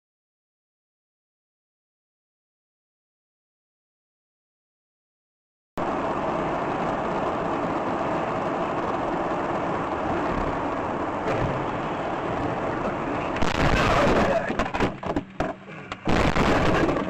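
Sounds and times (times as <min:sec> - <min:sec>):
vehicle driving on road: 0:05.8 - 0:17.0.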